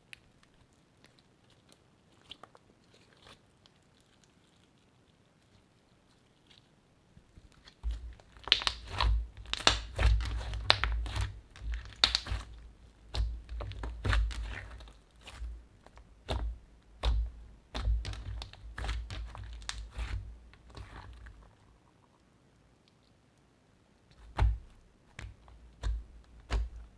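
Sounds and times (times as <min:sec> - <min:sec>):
slime crackling and popping: 0:07.4 - 0:21.6, 0:24.1 - 0:26.9.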